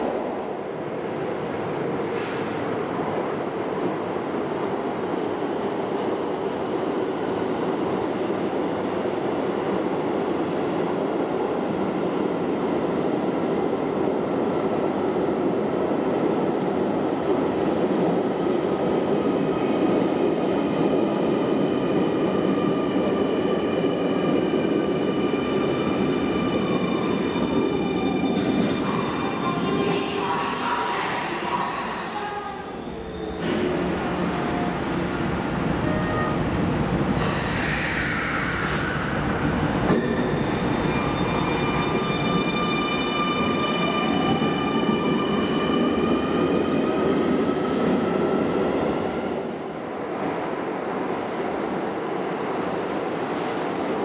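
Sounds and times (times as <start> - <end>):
rumble of wheels on rail: 0.0 - 54.0
high-toned train whine: 37.2 - 49.2.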